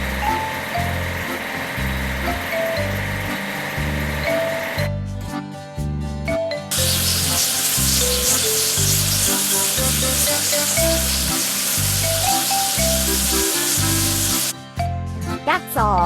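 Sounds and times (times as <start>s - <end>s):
background music with bass line: 0.0s - 16.0s
pressure washer water spray: 6.7s - 14.5s.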